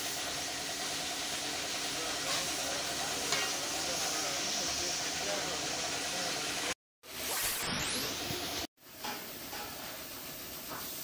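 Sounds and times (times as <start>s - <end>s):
steady hiss: 0.0s - 6.8s.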